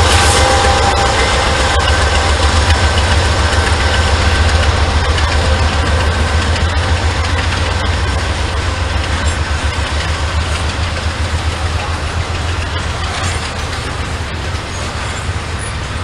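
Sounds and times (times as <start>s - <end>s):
diesel train engine rumble: 0.0s - 16.0s
rail noise: 0.0s - 16.0s.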